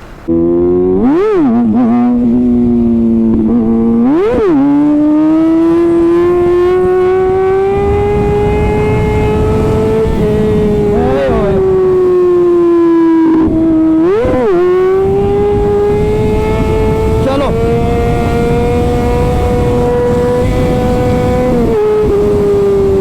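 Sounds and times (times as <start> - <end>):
motorcycle engine revving: 0.0 - 23.0
wind and road noise: 0.0 - 23.0.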